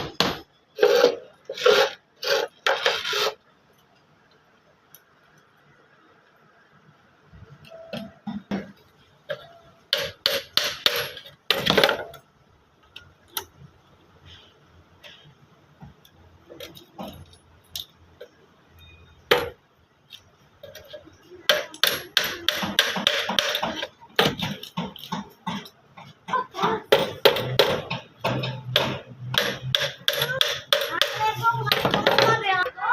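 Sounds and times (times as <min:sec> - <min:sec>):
hammering on wood: 0:00.0 - 0:00.5, 0:09.9 - 0:12.0, 0:21.5 - 0:32.4.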